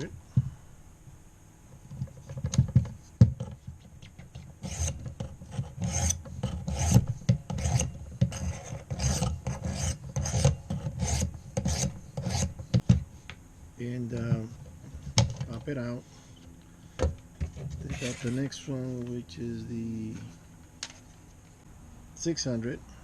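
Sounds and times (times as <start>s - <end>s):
sharpening stone rasping on blade: 4.6s - 5.0s, 5.8s - 7.0s, 7.6s - 12.5s.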